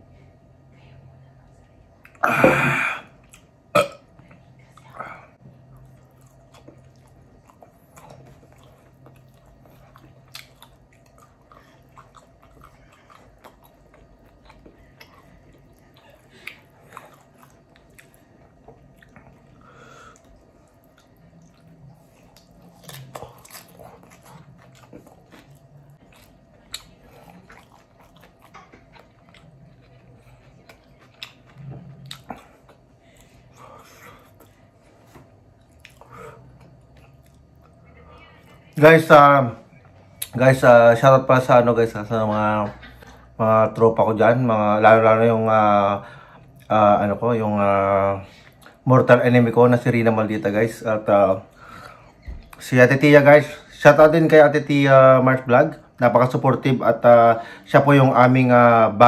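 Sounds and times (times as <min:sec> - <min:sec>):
man chewing food: 0:02.0 - 0:40.7, 0:44.9 - 0:46.8, 0:47.6 - 0:49.2, 0:51.2 - 0:52.7.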